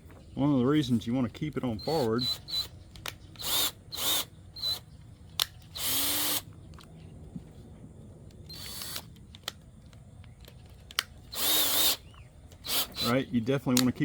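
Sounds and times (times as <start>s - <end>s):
power drill whining: 1.6s - 2.7s, 3.4s - 4.9s, 5.7s - 6.5s, 8.4s - 9.2s, 11.3s - 13.2s.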